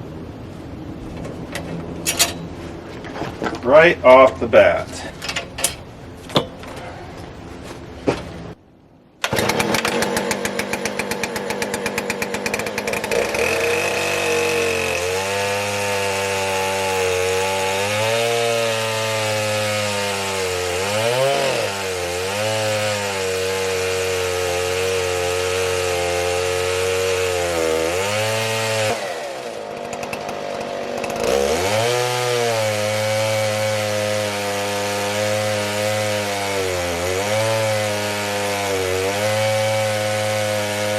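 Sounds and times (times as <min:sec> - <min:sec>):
chainsaw cutting through log: 0:09.2 - 0:40.9.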